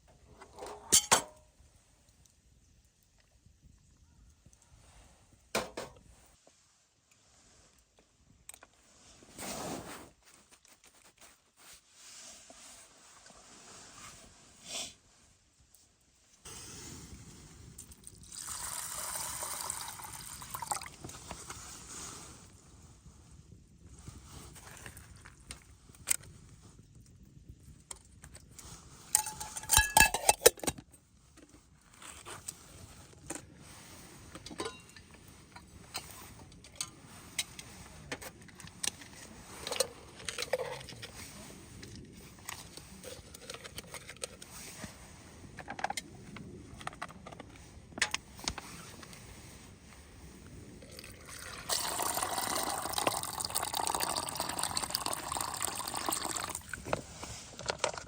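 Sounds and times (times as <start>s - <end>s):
camp gear clicking and knocking: 5.6s - 6.0s
water pouring: 17.9s - 21.0s, 50.8s - 56.8s.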